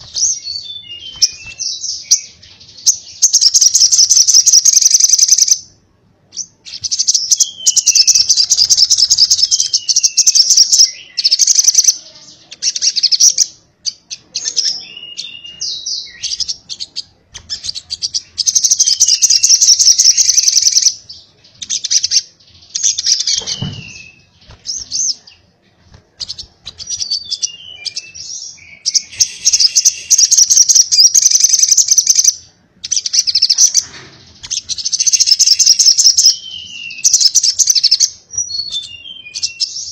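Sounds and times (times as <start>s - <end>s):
bird rapid chattering song: 0.0s - 5.7s, 6.3s - 39.9s
dull thump: 23.4s - 24.0s
falling whistled bird notes: 26.8s - 32.3s.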